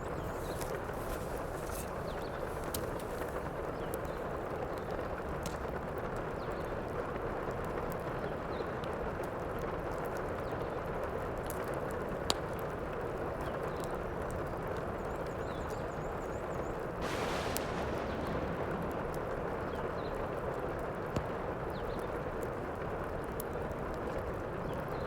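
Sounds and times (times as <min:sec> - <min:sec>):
heavy rain: 0:17.0 - 0:23.9
wood fire crackling and popping: 0:17.0 - 0:24.8.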